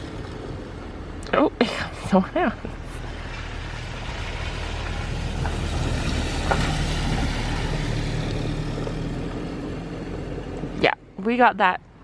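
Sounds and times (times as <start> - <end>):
vehicle driving past: 2.7 - 10.8.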